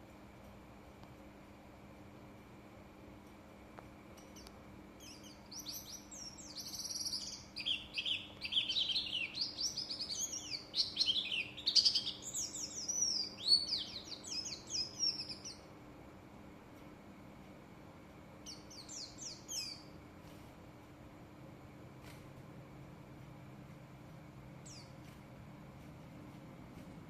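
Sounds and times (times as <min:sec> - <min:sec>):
bird singing fast warbling song: 0:04.2 - 0:15.7, 0:18.4 - 0:20.0, 0:24.6 - 0:25.0.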